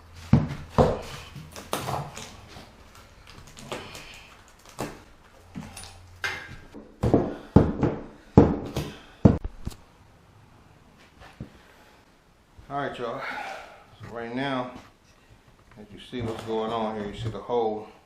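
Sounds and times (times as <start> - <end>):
wood knocking and cracking: 0.3 - 9.6.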